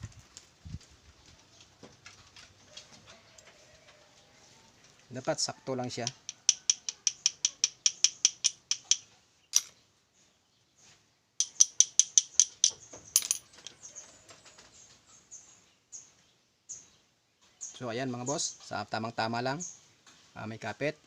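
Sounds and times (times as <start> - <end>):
rapid metallic clicking: 6.0 - 9.0, 11.4 - 13.4.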